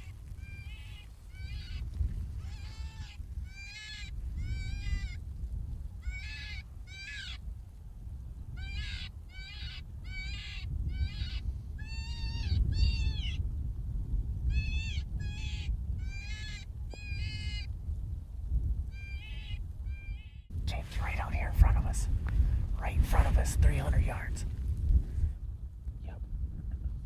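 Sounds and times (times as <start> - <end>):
wind rumble on microphone: 0.0 - 27.0
predator call wavering cries: 2.4 - 5.2, 6.0 - 7.4, 8.6 - 13.4, 14.5 - 17.7, 18.9 - 20.4.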